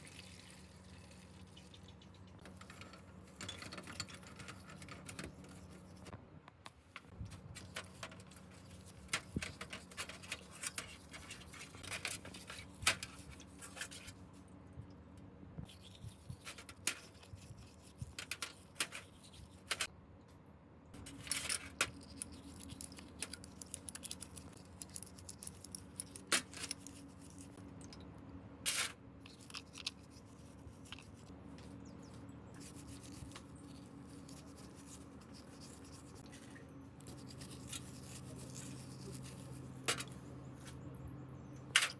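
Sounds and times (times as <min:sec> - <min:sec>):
faint steady hum: 0:00.0 - 0:41.9
metal parts clicking and clinking: 0:02.4 - 0:06.1
metal scraping and rubbing: 0:02.4 - 0:06.1, 0:07.4 - 0:14.2.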